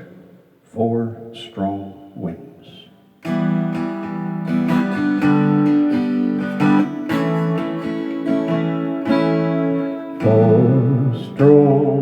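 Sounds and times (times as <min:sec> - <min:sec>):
acoustic guitar strumming: 0:03.2 - 0:12.0.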